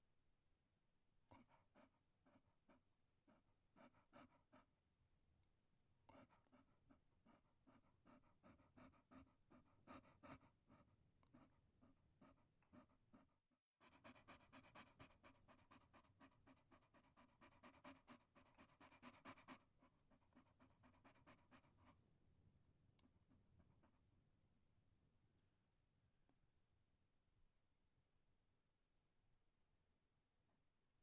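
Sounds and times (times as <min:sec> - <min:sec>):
dog panting: 0:01.3 - 0:04.8, 0:06.0 - 0:22.2.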